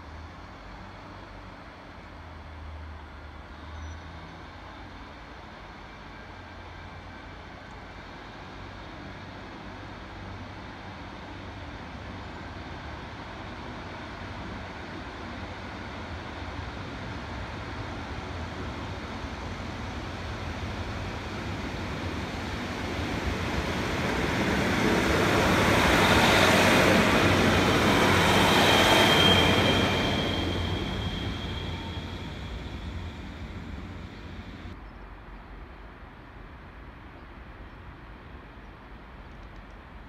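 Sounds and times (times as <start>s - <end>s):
train rumbling past: 7.9s - 34.8s
high-pitched squeal: 24.8s - 34.8s.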